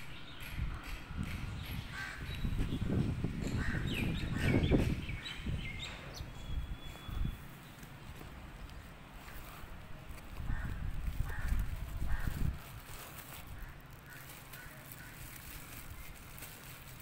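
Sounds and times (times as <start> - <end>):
bird calls: 0.0 - 7.9.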